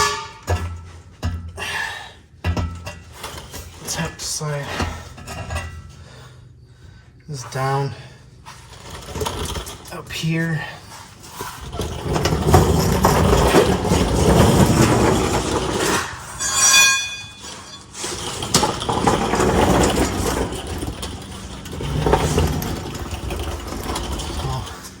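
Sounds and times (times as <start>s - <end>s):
high metal squeal: 0.0s - 0.5s, 15.8s - 18.9s
metal pipe scraping and clunking: 0.0s - 1.8s, 2.4s - 6.4s, 7.3s - 25.0s.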